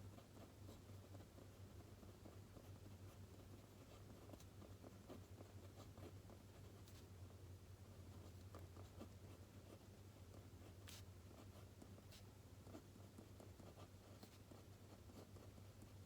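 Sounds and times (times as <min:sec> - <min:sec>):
pen writing on paper: 0:08.5 - 0:15.9.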